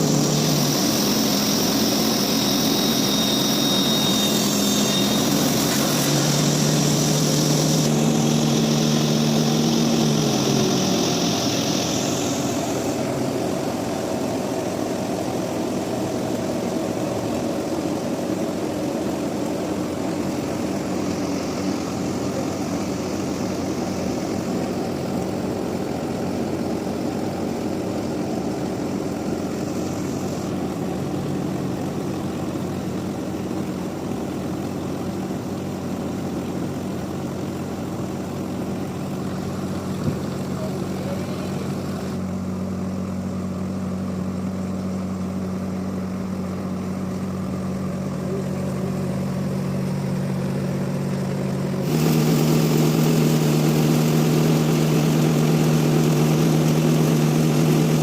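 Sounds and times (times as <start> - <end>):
sawmill machinery drone: 0.0 - 58.0.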